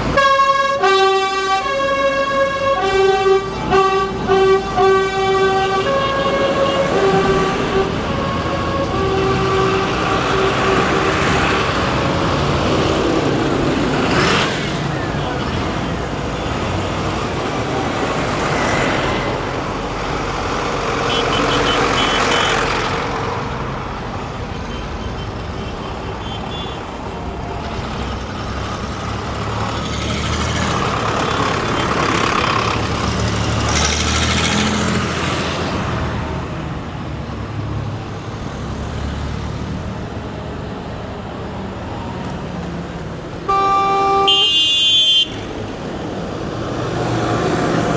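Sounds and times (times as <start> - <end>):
tractors driving past: 0.0 - 47.9
horn toots: 0.1 - 12.2, 20.8 - 23.1, 43.4 - 45.6.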